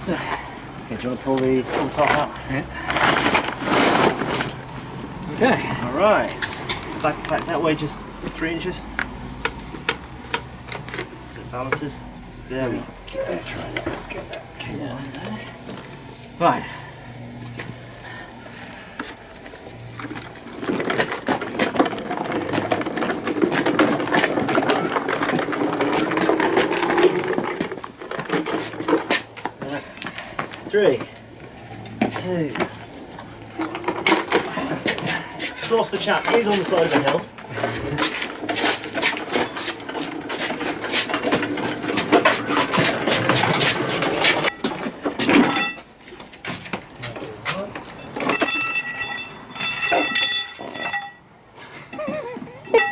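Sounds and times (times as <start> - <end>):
cable winch droning and clicking: 0.9 - 16.5, 18.4 - 32.0.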